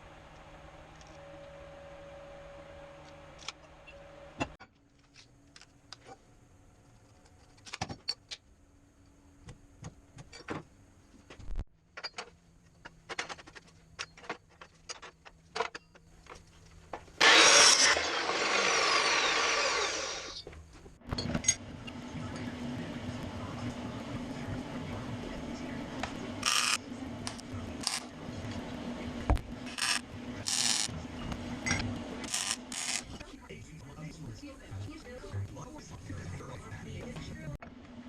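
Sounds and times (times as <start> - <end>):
power tool running: 17.2 - 20.5, 26.0 - 28.2, 29.6 - 31.0, 31.6 - 33.1.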